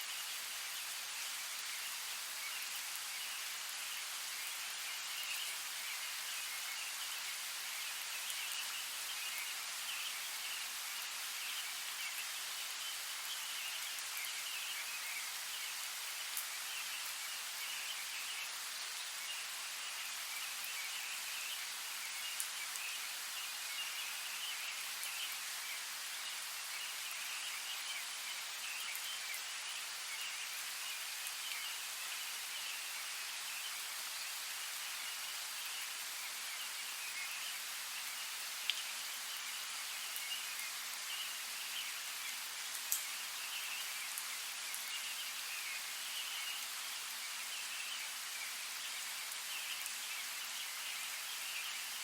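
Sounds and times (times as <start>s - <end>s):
light rain falling: 0.0s - 52.0s
raindrop ticks: 42.8s - 43.1s.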